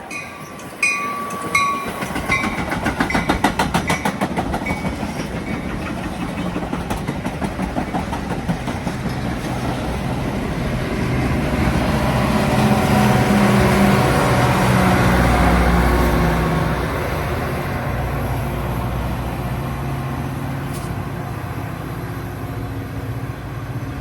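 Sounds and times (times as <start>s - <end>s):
bell ringing: 0.0s - 5.7s
train wheels clicking over rail joints: 0.1s - 10.6s.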